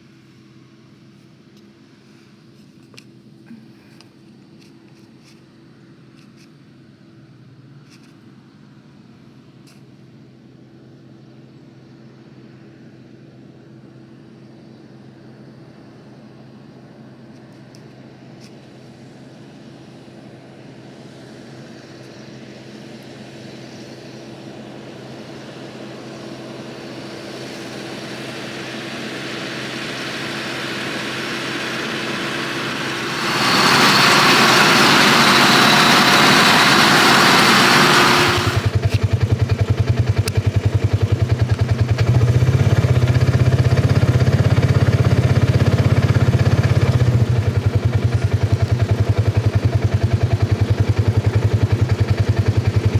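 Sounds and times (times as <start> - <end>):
tractor running: 26.1 - 52.9
heavy fast low pulsing: 28.0 - 41.6
loud rushing noise: 29.5 - 38.8.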